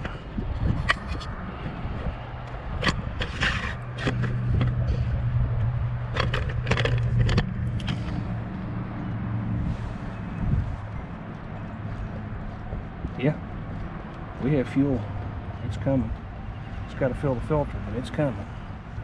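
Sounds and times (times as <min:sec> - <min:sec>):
fuel pump humming: 0:00.0 - 0:10.2.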